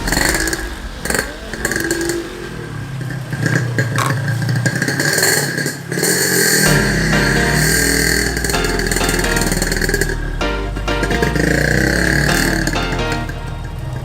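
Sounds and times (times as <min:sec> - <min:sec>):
vehicle engine running: 0:06.3 - 0:14.0.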